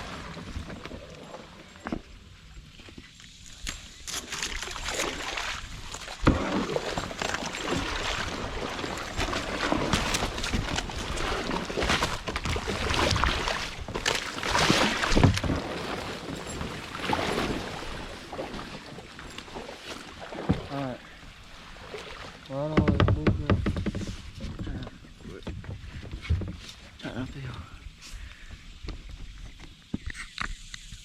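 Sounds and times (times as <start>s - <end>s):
kayak paddling through lily pads: 0.0s - 31.0s
sharp knock on boat: 22.7s - 24.8s.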